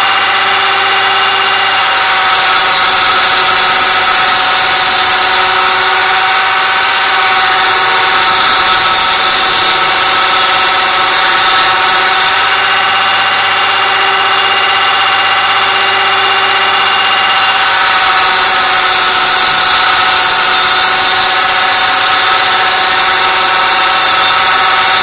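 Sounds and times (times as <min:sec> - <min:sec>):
wood cutting hiss: 0:00.0 - 0:25.0
woodworking machine humming: 0:00.0 - 0:25.0.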